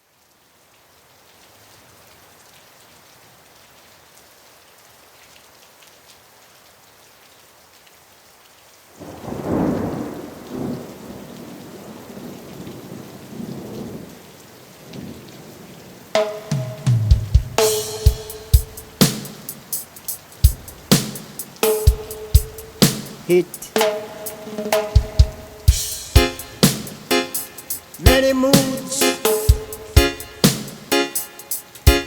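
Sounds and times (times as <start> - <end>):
rain hiss: 0.0 - 32.0
thunder clap and rumble: 9.0 - 14.1.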